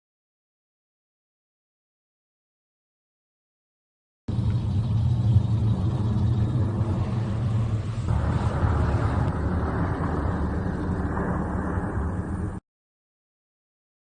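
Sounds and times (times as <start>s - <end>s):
plane engine rumbling: 4.3s - 12.6s.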